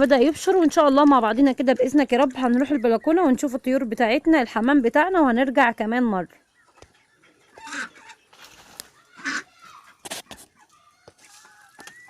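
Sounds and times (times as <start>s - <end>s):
fowl clucking: 6.8s - 8.5s, 9.2s - 11.9s.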